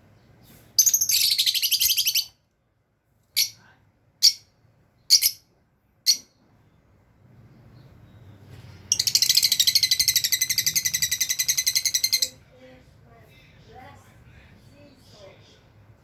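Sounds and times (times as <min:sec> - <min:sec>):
lovebirds chirping: 0:00.0 - 0:02.4, 0:04.2 - 0:05.4, 0:06.1 - 0:12.4.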